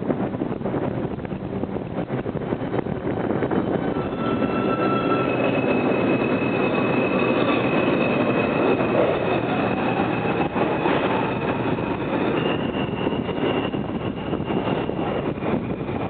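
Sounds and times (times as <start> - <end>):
subway train rumbling: 0.0 - 16.0
high steady squeal: 3.4 - 16.0.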